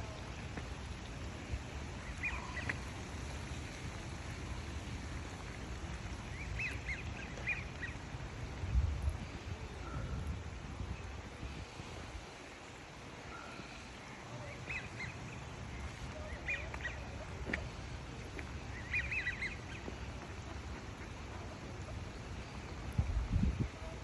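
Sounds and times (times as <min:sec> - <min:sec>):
waterfowl calling: 0:13.3 - 0:22.8.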